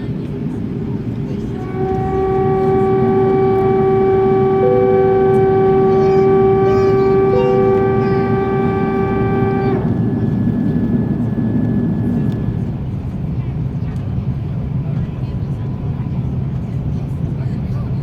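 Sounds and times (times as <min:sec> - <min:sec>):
aircraft cabin rush: 0:00.0 - 0:15.4
loud pitched whine: 0:01.5 - 0:13.0
higher tone: 0:01.6 - 0:12.9.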